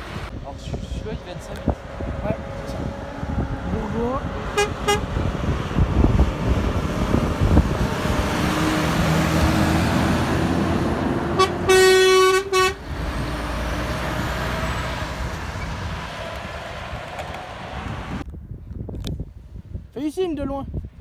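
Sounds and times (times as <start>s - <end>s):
truck passing: 0.0s - 0.4s, 1.2s - 18.2s
truck air horn: 4.5s - 5.1s, 11.3s - 12.8s.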